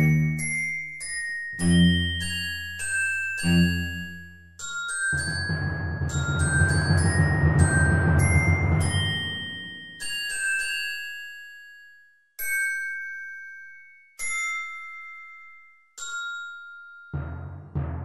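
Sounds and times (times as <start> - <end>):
bell-like notes ringing: 0.0 - 18.0
deep heavy drum hit: 17.2 - 18.0.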